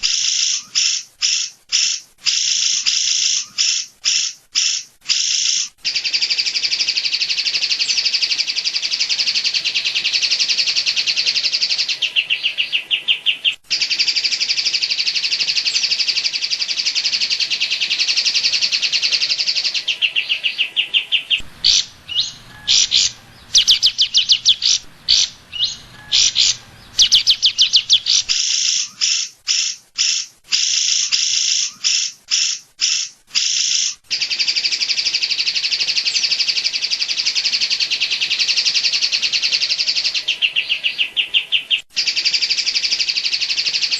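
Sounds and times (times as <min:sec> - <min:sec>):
bird singing rapid high notes: 0:00.0 - 0:37.5.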